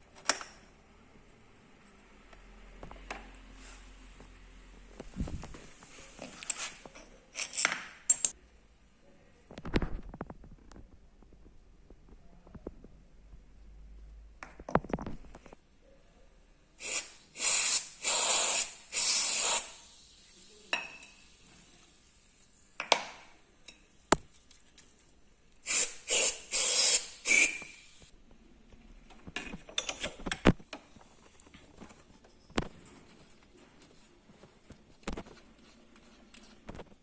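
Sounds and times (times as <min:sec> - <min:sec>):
aerosol can spraying: 0:16.8 - 0:20.6, 0:25.7 - 0:28.1.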